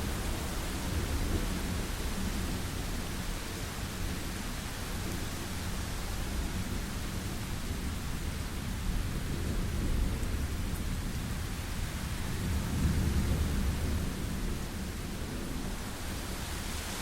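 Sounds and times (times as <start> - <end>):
low rolling thunder: 0.0 - 17.0
rain hiss: 0.0 - 17.0.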